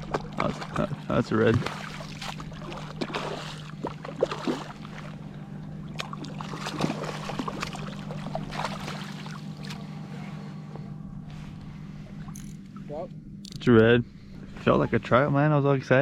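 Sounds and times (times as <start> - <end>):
shallow water splashing: 0.0 - 10.1
steady low hum: 0.0 - 16.0.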